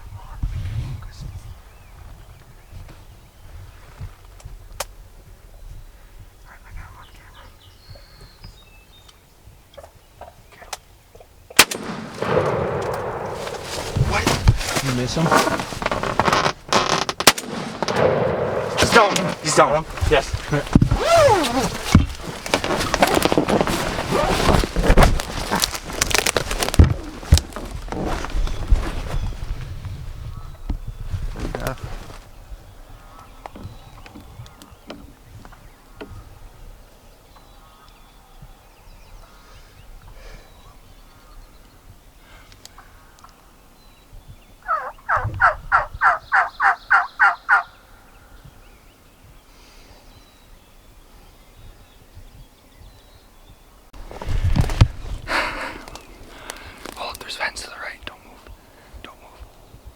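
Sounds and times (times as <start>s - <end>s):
clothing and gear rustling: 12.2s - 17.3s, 18.5s - 30.2s, 31.0s - 32.4s, 54.0s - 57.0s
turkey gobbling: 44.7s - 47.7s.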